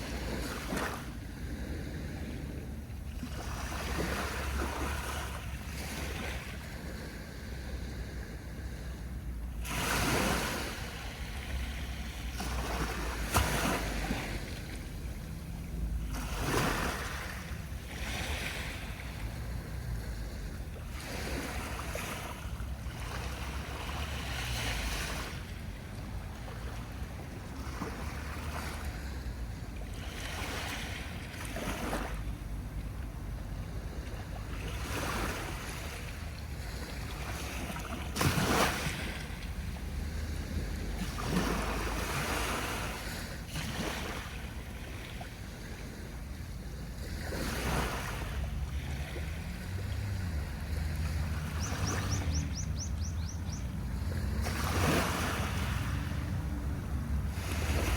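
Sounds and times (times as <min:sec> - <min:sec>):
waves breaking on shore: 0:00.0 - 0:57.9
low steady rumble: 0:13.9 - 0:18.0, 0:32.1 - 0:34.8, 0:48.1 - 0:57.9.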